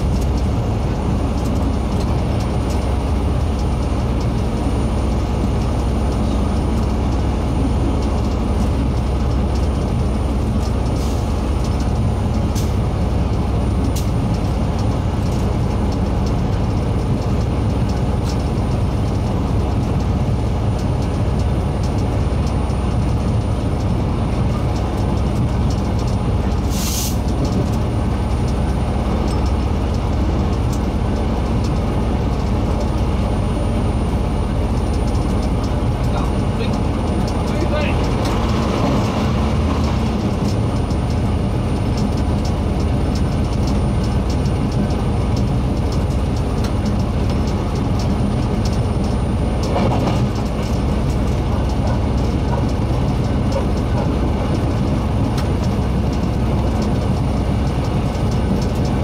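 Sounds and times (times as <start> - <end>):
train rumbling on rails: 0.0 - 59.0
short hiss: 26.7 - 27.2.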